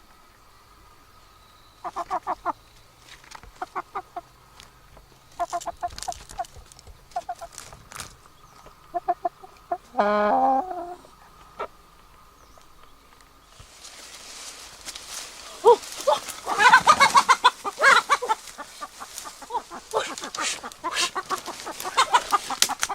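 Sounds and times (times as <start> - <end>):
chicken clucking: 1.8 - 2.6, 3.4 - 4.3, 5.3 - 7.8, 8.6 - 12.0, 15.5 - 22.9
chicken squawk: 1.8 - 2.6, 3.6 - 4.3, 5.4 - 7.6, 8.9 - 11.8, 15.6 - 22.9.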